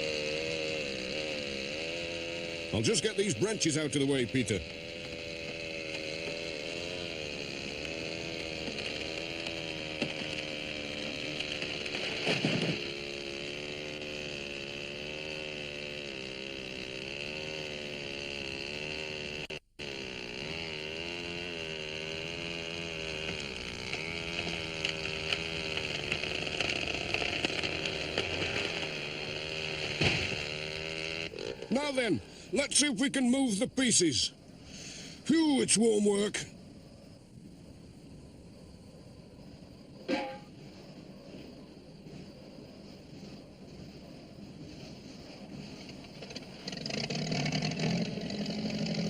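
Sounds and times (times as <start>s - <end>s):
chainsaw cutting log: 0.0s - 33.8s, 34.6s - 36.3s, 45.4s - 49.0s.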